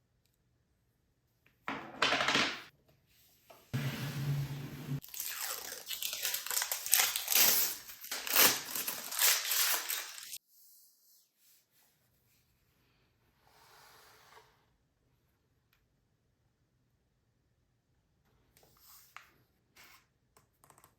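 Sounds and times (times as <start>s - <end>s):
packaging crinkling: 5.0s - 10.4s.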